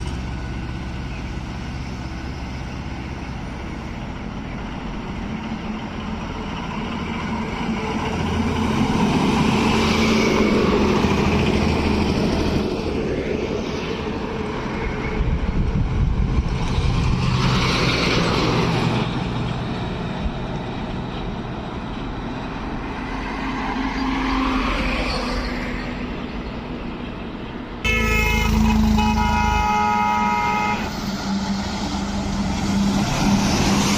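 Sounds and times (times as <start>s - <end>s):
heavy trucks passing: 0.0s - 33.9s
vehicle horn blasts: 27.8s - 31.0s.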